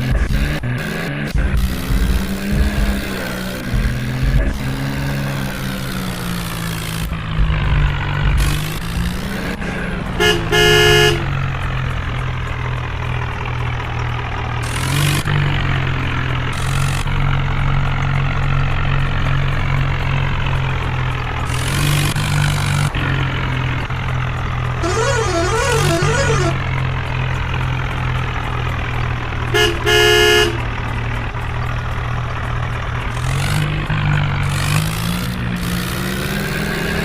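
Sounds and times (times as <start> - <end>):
tractor diesel engine running: 0.0 - 37.0
horn honking: 8.3 - 17.2, 21.4 - 35.3.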